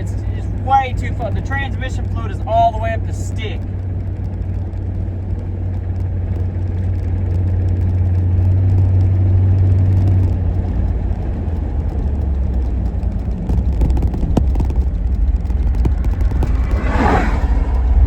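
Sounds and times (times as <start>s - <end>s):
pickup truck engine droning: 0.0s - 18.0s.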